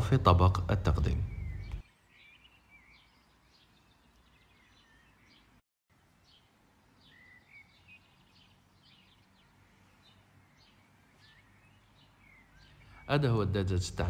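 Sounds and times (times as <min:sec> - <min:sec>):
small bird chirps: 0:01.0 - 0:05.6, 0:06.2 - 0:13.2.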